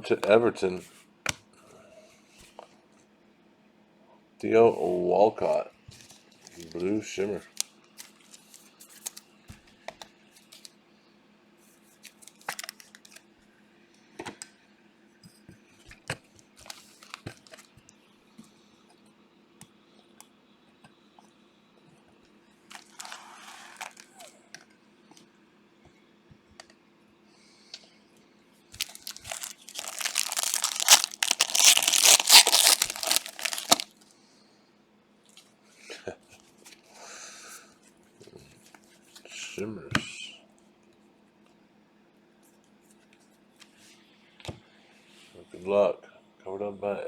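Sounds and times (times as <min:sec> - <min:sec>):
card wrapper tearing and crinkling: 0:12.3 - 0:12.9, 0:22.7 - 0:24.2, 0:28.8 - 0:33.9.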